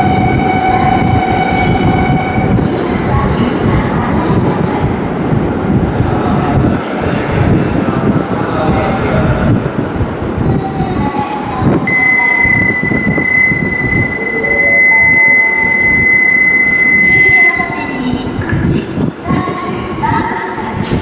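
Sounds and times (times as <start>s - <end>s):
train wheels rumbling: 0.0s - 20.9s
train motor tones rising: 11.9s - 18.0s
high-pitched whine: 11.9s - 18.1s.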